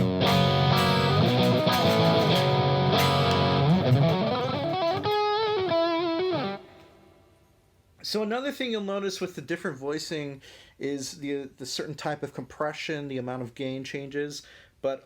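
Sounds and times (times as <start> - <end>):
distorted electric guitar: 0.0 - 7.0.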